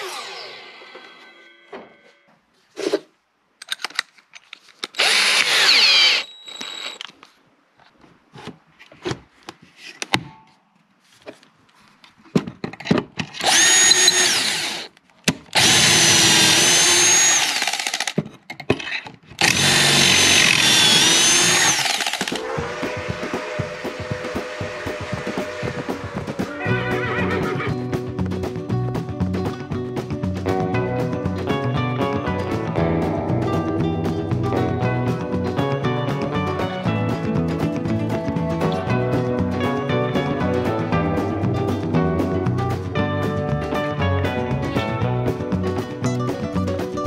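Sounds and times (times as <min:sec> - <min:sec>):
power tool cutting wood: 0:00.0 - 0:01.3, 0:05.0 - 0:07.0, 0:13.4 - 0:14.9, 0:15.6 - 0:18.2, 0:19.4 - 0:26.6.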